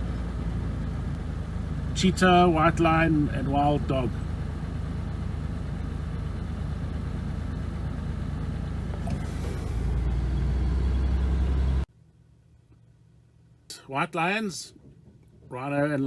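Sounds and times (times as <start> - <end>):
car engine running: 0.0 - 11.9.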